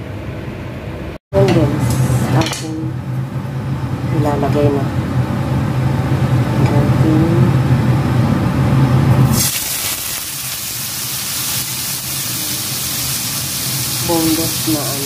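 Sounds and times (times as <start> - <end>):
steady low hum: 0.0 - 15.0
chicken sizzling in hot fat: 9.2 - 15.0.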